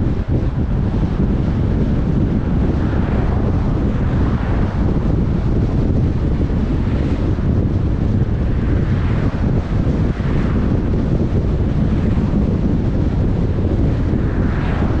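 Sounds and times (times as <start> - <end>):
car road and wind noise: 0.0 - 15.0.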